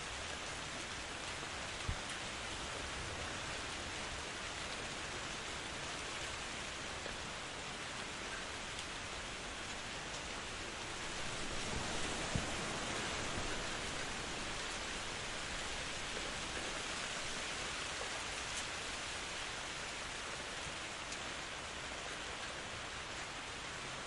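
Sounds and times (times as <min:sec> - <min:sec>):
steady rain in forest: 0:00.0 - 0:24.0.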